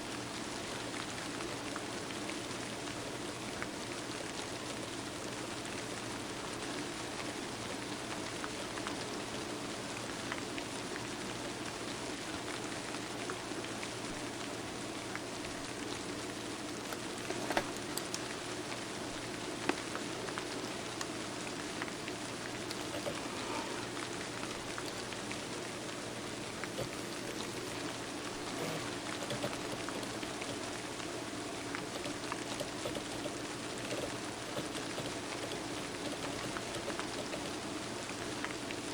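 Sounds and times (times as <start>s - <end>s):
steady rain patter: 0.0s - 38.9s
sharp clicks: 16.9s - 18.3s, 22.6s - 23.6s, 26.6s - 30.7s, 31.8s - 37.7s.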